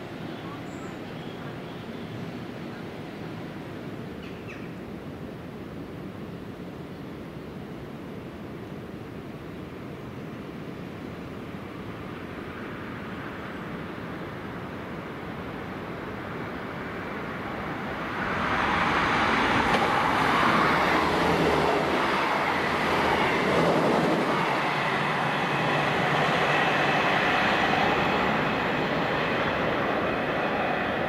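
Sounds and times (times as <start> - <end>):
train wheels rushing on rails: 16.7 - 31.0.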